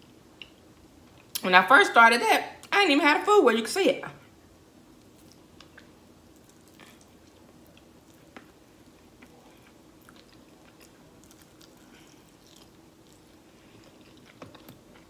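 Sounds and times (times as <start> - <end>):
faint chewing and biting: 5.0 - 15.0.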